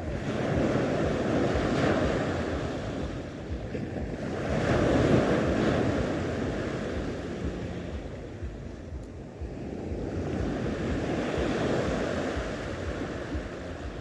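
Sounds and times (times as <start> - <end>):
sea waves on shore: 0.0 - 14.0
wind buffeting microphone: 0.0 - 14.0.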